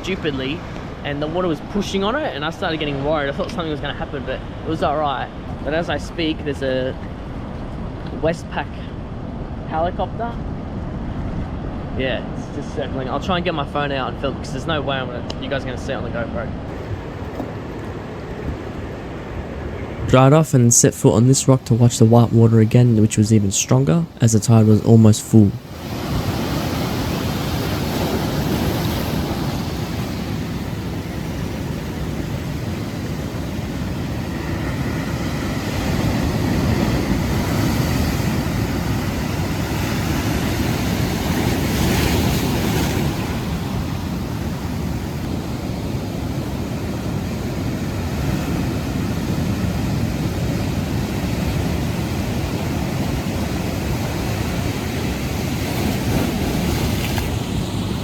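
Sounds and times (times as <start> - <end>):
ocean surf breaking: 0.0 - 8.0, 16.5 - 58.0
wind buffeting microphone: 16.6 - 22.4.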